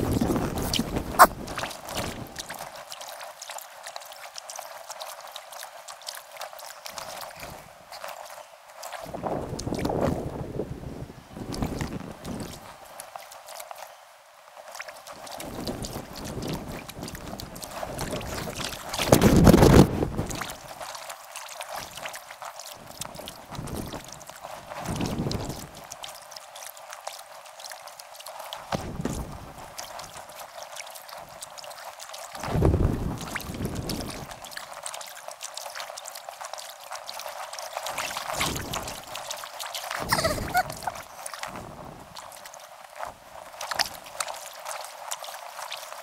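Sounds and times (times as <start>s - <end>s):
wind rush on microphone: 0.0s - 2.4s, 9.0s - 12.7s, 15.4s - 20.8s, 23.1s - 25.8s, 28.7s - 29.7s, 32.4s - 34.4s, 38.2s - 39.1s, 40.0s - 42.2s
paddle splashing water: 0.0s - 10.3s, 11.5s - 46.0s.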